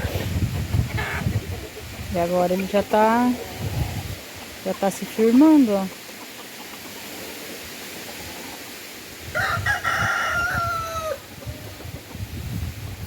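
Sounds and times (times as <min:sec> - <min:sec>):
wind buffeting microphone: 0:00.0 - 0:04.7, 0:09.2 - 0:13.0
rooster crowing: 0:09.3 - 0:11.3.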